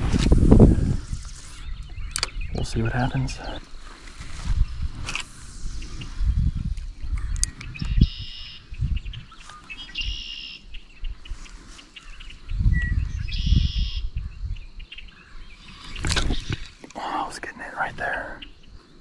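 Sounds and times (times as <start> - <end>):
low rumbling on microphone: 0.0 - 9.4, 12.4 - 17.3.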